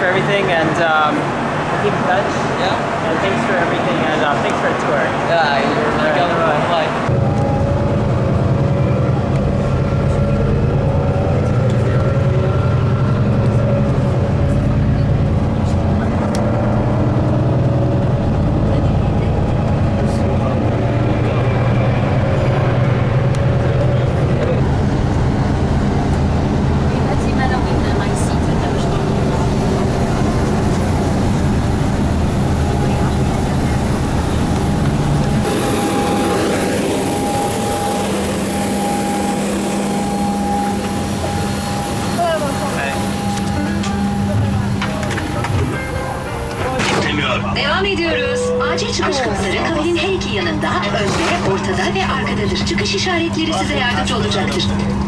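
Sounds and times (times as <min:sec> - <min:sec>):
vehicle engine humming: 0:00.0 - 0:55.0
faint voices: 0:17.7 - 0:55.0.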